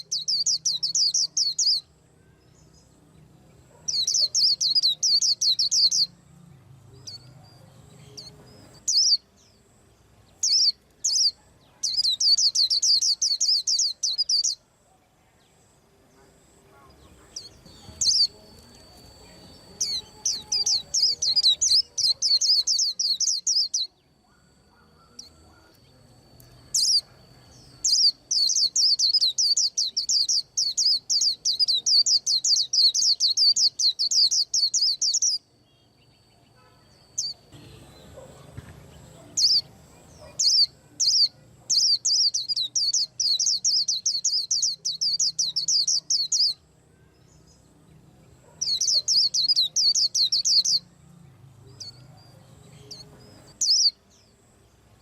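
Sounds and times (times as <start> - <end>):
bird singing fast high chirps: 0.0 - 2.0, 3.8 - 6.2, 7.0 - 9.6, 10.4 - 14.6, 17.3 - 25.8, 26.6 - 35.5, 39.2 - 46.7, 48.4 - 50.9, 51.8 - 54.0
faint steady high tone: 0.0 - 55.0.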